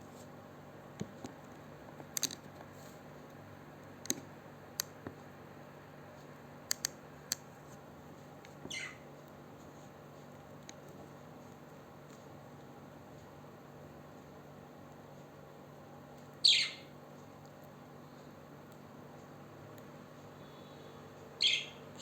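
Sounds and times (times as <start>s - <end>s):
parrot squeak falling in pitch: 8.7s - 9.0s.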